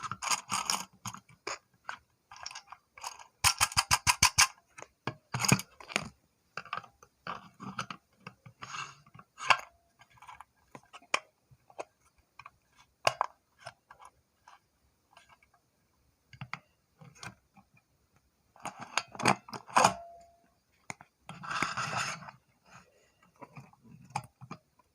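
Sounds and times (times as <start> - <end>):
plastic toy clicking and rattling: 0.0 - 4.6.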